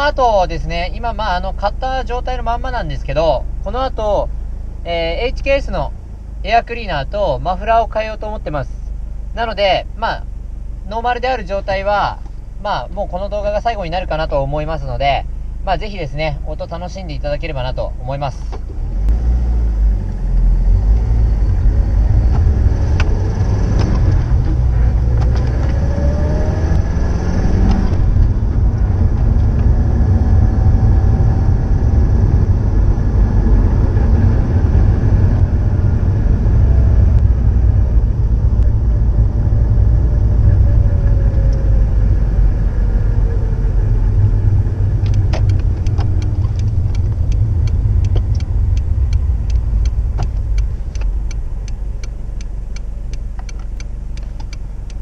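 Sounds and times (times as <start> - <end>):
car exhaust note: 0.0 - 55.0
fast regular ticking: 45.0 - 55.0.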